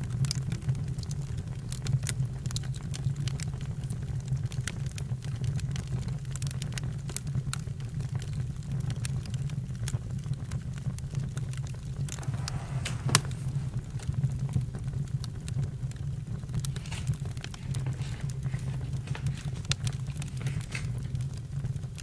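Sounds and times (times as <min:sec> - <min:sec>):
burning wood crackling: 0:00.0 - 0:22.0
low rumble of flames: 0:00.0 - 0:22.0.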